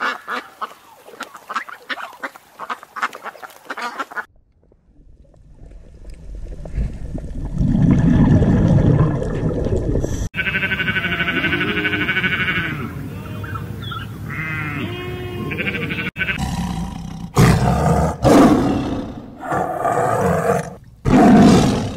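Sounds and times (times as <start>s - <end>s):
lamb bleating: 10.4s - 13.5s, 14.3s - 16.5s
ewe bleating: 10.4s - 13.6s, 14.3s - 16.6s
tiger roaring: 16.3s - 21.9s.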